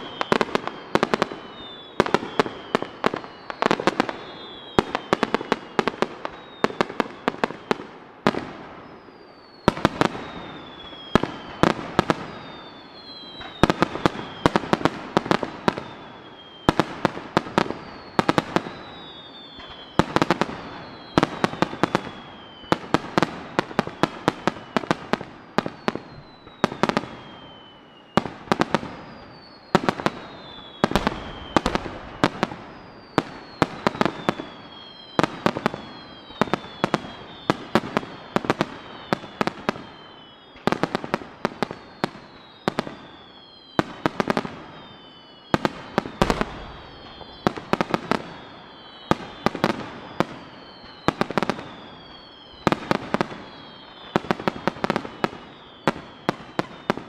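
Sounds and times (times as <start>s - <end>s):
falling firework whistles: 0.0s - 57.0s
firework shells bursting: 30.7s - 32.9s, 46.0s - 49.5s.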